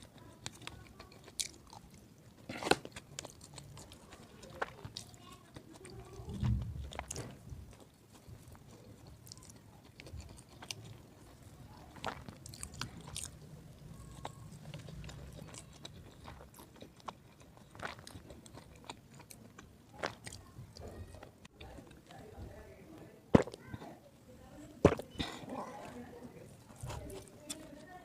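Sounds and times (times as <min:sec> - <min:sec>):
chewing: 0:00.0 - 0:24.0, 0:24.8 - 0:28.0.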